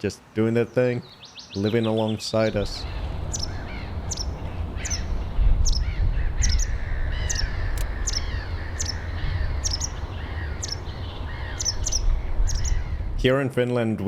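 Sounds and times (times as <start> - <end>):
harsh bird calls: 0.6 - 13.4
low rumble: 2.5 - 13.5
sharp high bird chirp: 2.8 - 13.0.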